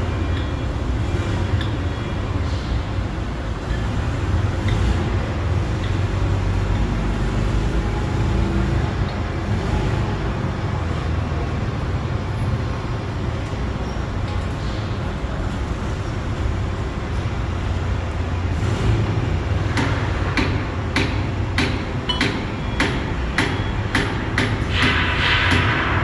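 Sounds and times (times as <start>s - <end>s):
hammer striking steel: 19.7s - 26.0s.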